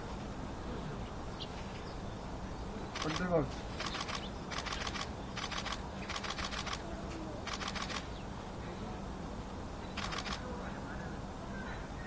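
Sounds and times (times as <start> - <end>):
small birds rattling clicks: 3.0 - 6.8, 7.4 - 8.1.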